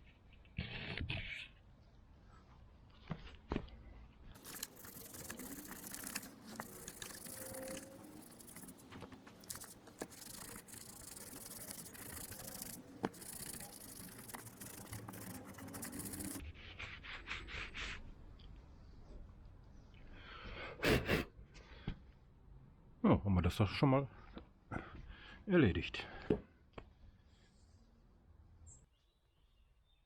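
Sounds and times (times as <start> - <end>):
cloth buffing metal: 4.4 - 16.4.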